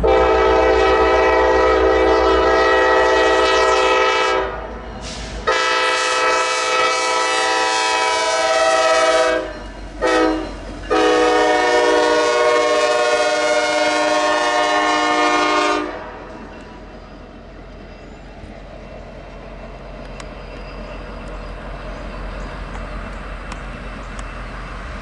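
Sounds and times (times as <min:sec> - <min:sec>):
locomotive air horn: 0:00.0 - 0:16.3
train rumble: 0:00.0 - 0:25.0.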